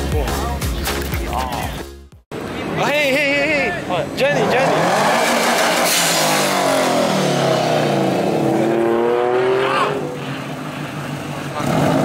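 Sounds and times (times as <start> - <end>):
car engine revving: 4.2 - 12.0.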